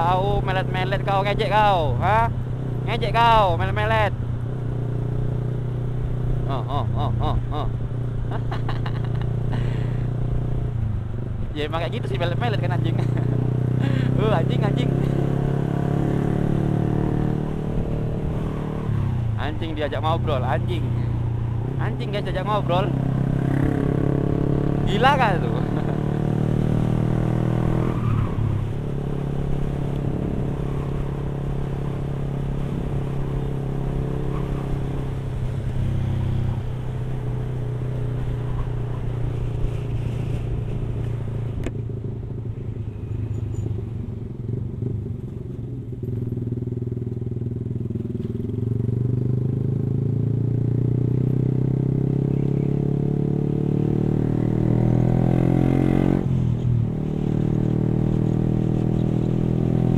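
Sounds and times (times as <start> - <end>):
motorcycle engine running: 0.0 - 18.6, 31.2 - 55.6.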